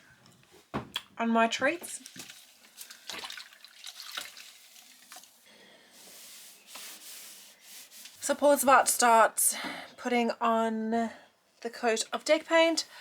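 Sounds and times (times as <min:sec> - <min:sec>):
tap water running into sink: 0:02.0 - 0:05.3.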